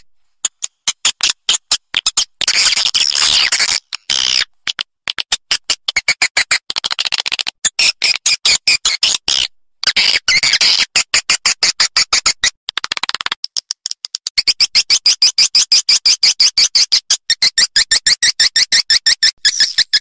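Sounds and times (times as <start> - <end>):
faint rapid clicking: 12.7 - 14.4.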